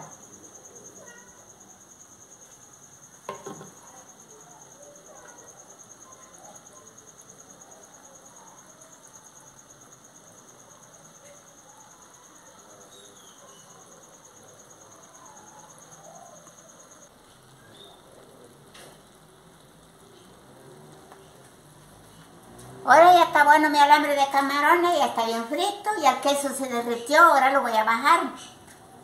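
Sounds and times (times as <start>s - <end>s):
insect trilling: 0.0s - 21.3s
food sizzling in a pan: 0.0s - 25.3s.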